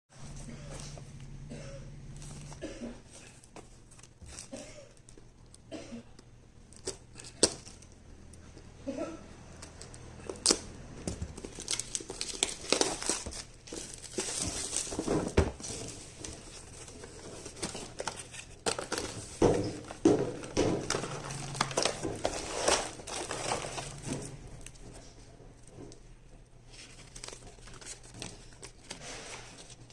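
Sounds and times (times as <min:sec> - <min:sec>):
packaging crinkling and rustling: 0:09.6 - 0:26.0, 0:26.7 - 0:29.9.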